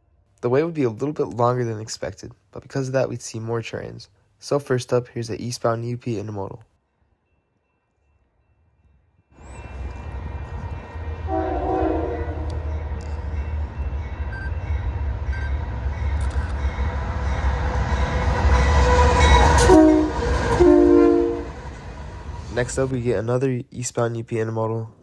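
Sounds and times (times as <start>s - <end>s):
diesel locomotive rumble: 9.4s - 23.4s
train horn blasts: 11.0s - 12.7s, 18.6s - 21.6s.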